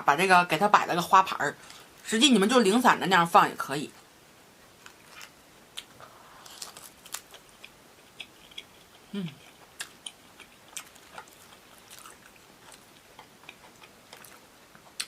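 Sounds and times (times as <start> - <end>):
person chewing food: 4.8 - 15.0.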